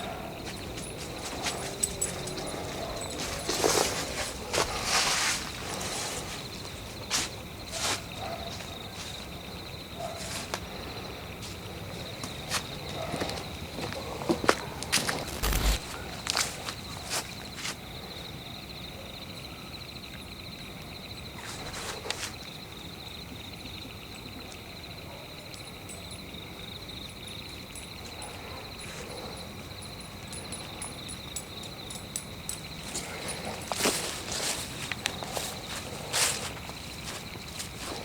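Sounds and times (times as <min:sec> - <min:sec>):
crickets chirping: 0:00.0 - 0:38.0
footsteps in leaf litter: 0:03.2 - 0:06.4, 0:15.0 - 0:15.9.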